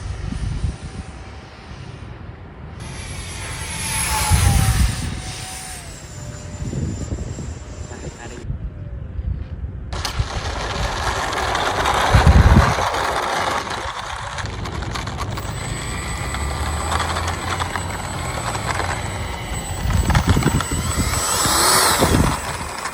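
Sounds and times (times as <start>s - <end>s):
electric ducted fans whining: 0.0s - 8.8s, 9.8s - 22.9s
low rumbles: 9.9s - 22.9s.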